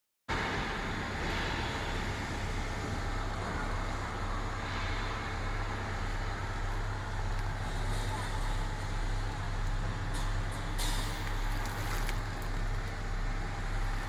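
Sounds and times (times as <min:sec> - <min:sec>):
truck engine humming: 0:05.7 - 0:14.0.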